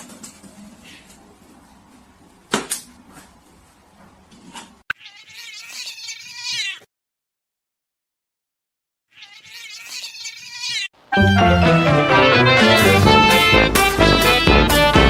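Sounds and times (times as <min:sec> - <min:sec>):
cat yowling: 0:04.9 - 0:06.9, 0:09.1 - 0:10.9.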